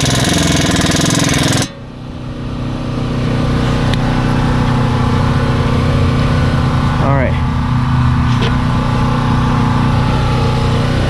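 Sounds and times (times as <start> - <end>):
impact wrench hammering on nut: 0.0 - 1.8
engine hum: 0.0 - 11.0.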